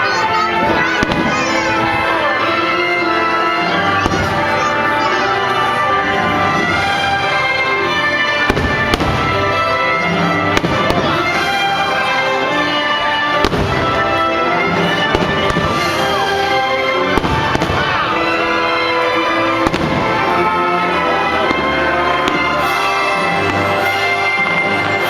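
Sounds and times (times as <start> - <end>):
firework bangs: 0.6 - 2.7, 3.8 - 5.0, 5.9 - 25.0.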